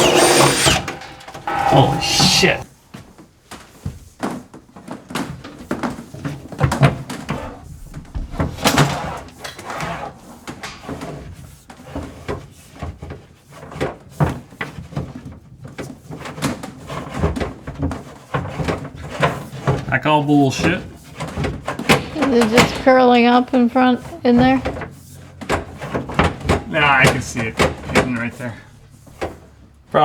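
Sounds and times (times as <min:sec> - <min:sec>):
tubing knocking and scraping: 0:00.0 - 0:02.6, 0:05.2 - 0:29.7.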